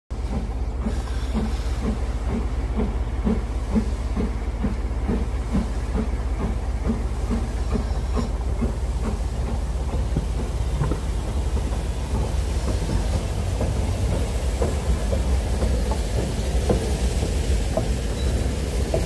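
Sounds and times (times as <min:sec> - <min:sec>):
steam locomotive chugging: 0:00.1 - 0:19.0.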